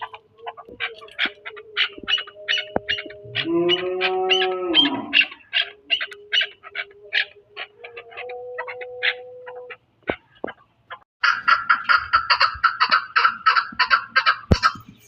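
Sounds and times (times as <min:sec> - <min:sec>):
long level bird call: 0:00.0 - 0:10.5
birds chirping rapidly: 0:00.0 - 0:15.0.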